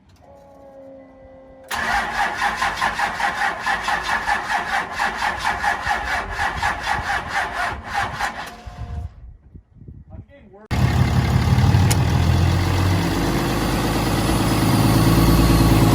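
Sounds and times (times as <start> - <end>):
engine cranking on starter: 1.7 - 8.9, 10.7 - 15.9.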